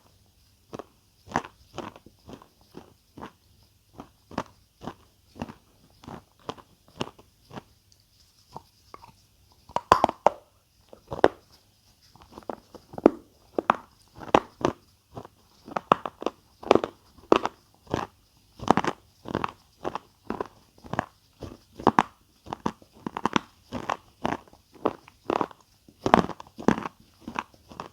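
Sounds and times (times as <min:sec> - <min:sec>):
chewing crunchy food: 0:00.7 - 0:27.9.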